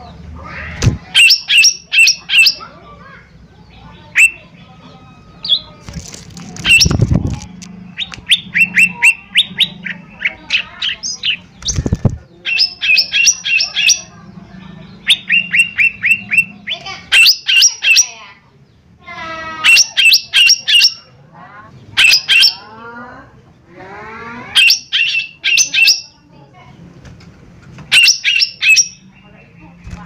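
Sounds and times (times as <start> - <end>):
bird calling in sharp notes: 0.5 - 2.9, 3.7 - 5.8, 6.6 - 18.4, 19.1 - 21.1, 22.0 - 22.7, 24.3 - 26.2, 27.9 - 29.8.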